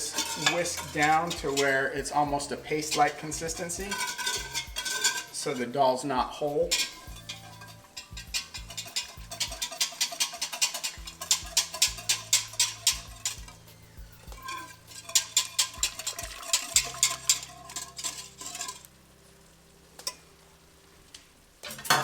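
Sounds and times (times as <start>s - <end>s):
wire whisk clicking in paste: 6.7s - 13.6s, 15.0s - 18.0s.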